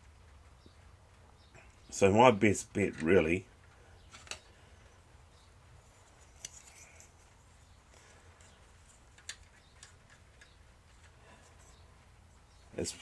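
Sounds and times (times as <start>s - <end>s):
faint clicks of plastic toy parts: 2.8s - 5.0s, 6.0s - 12.1s.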